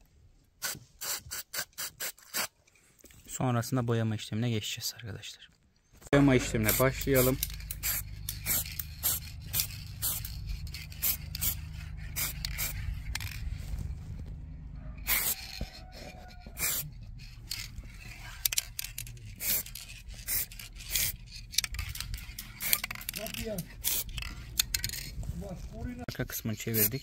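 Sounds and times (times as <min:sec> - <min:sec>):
spray paint bursts: 0:00.6 - 0:02.5, 0:06.5 - 0:13.4, 0:15.0 - 0:15.6, 0:16.6 - 0:17.0, 0:19.3 - 0:21.2, 0:21.9 - 0:24.2
steady low hum: 0:06.2 - 0:15.3.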